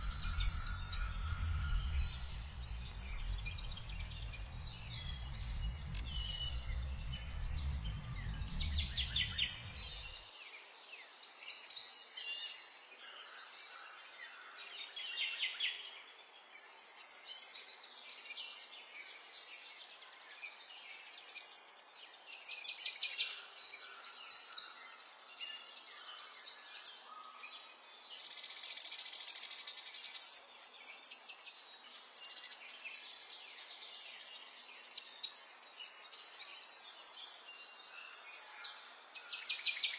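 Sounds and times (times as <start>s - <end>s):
songbirds singing: 0.0s - 10.2s
low rumble: 0.0s - 10.3s.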